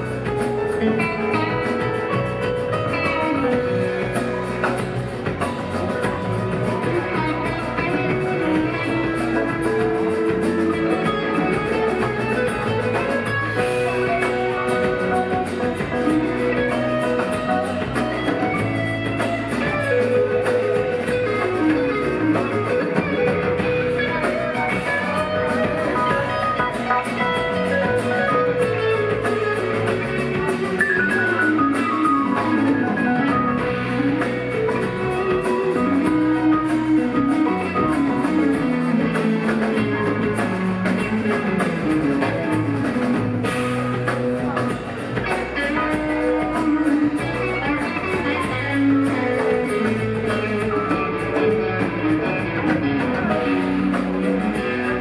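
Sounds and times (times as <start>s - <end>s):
bass guitar: 0.0s - 55.0s
drum kit: 0.0s - 55.0s
electric guitar lead lines: 0.0s - 55.0s.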